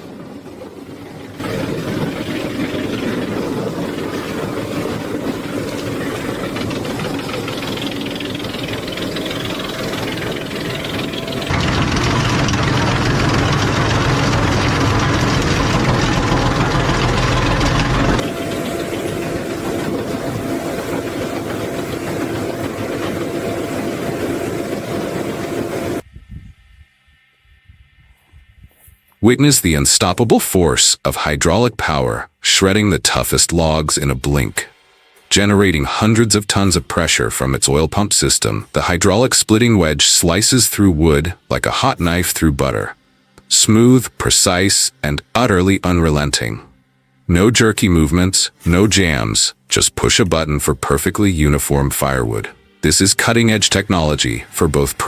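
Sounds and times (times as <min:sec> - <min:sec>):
rattling clatter: 0:00.0 - 0:26.0
wood chipper running: 0:00.0 - 0:26.0, 0:32.8 - 0:55.0.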